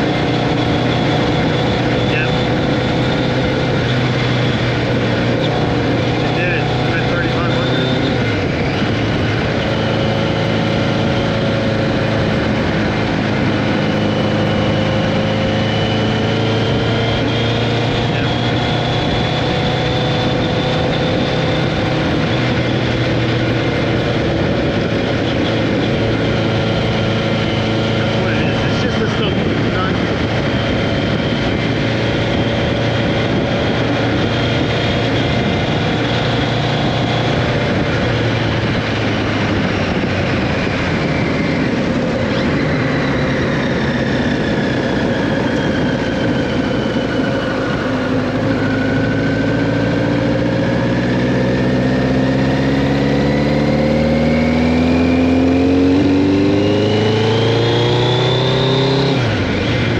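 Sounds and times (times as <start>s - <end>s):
motorcycle engine running: 0.0s - 59.9s
wind rushing: 0.0s - 59.9s.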